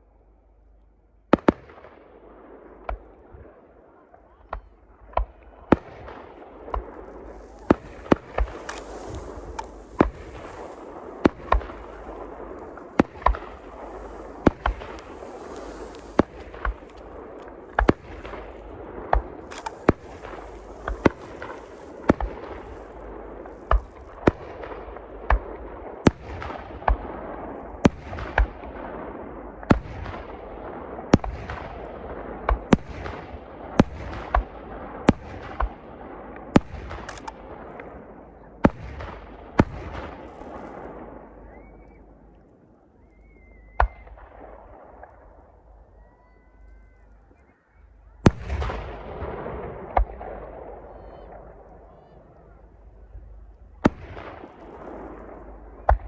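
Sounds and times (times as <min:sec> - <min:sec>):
firework bangs: 0:04.5 - 0:27.2
fireworks crackling and hissing: 0:06.0 - 0:25.6.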